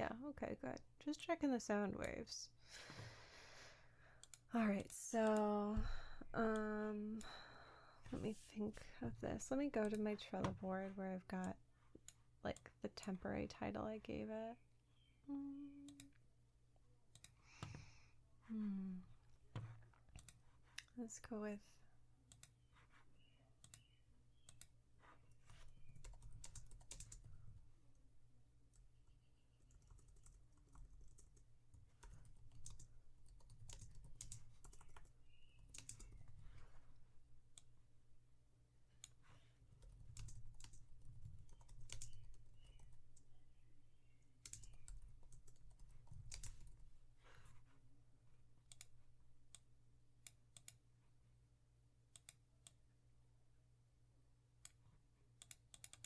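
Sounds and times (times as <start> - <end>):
mouse clicks: 23.2 - 24.8
typing on keyboard: 25.4 - 27.7, 28.8 - 36.7, 39.7 - 43.3, 44.4 - 47.0, 55.4 - 56.0.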